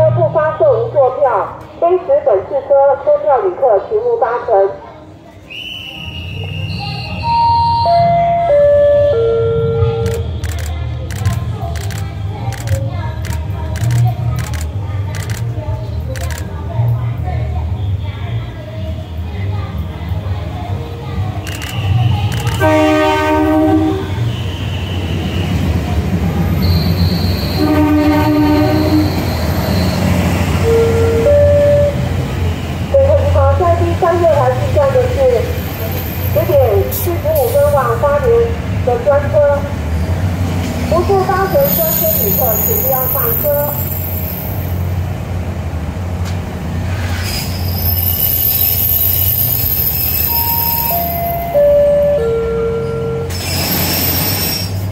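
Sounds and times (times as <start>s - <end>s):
diesel train engine rumble: 0.0s - 54.9s
high squealing wheels and brakes: 5.5s - 8.2s, 24.2s - 27.8s, 28.5s - 32.8s, 41.4s - 44.9s, 46.9s - 51.9s, 52.8s - 54.9s
train horn: 22.5s - 25.6s, 26.6s - 32.0s.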